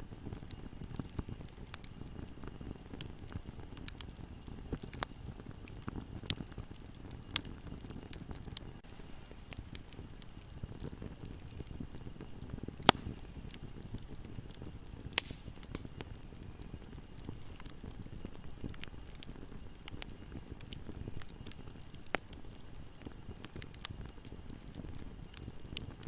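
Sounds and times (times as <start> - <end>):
wood fire crackling: 0.0 - 26.0
sharp pops: 15.2 - 15.9.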